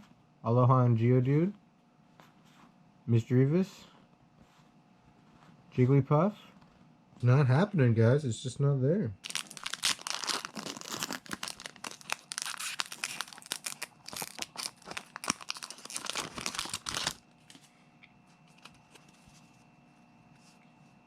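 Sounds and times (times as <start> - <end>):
wrapper tearing and crinkling: 9.2 - 17.2.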